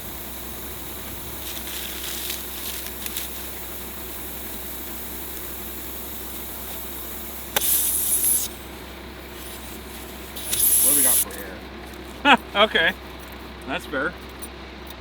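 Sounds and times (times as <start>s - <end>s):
compressed air hissing: 0.0s - 12.3s
engine hum: 0.0s - 15.0s
valve click: 0.1s - 11.4s.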